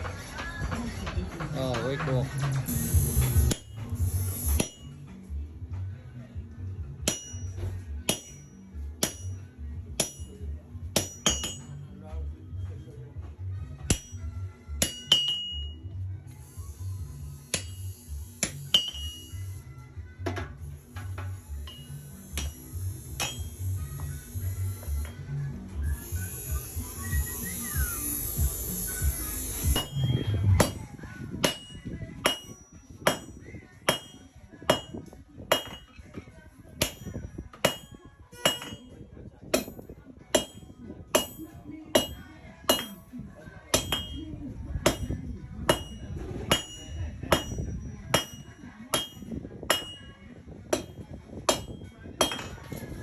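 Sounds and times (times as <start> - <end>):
hammer striking iron on anvil: 2.7 - 5.2, 7.0 - 12.0, 13.8 - 15.8, 17.4 - 19.6, 21.0 - 25.1, 29.5 - 36.1, 36.8 - 52.9
steady hissing noise: 20.7 - 30.0.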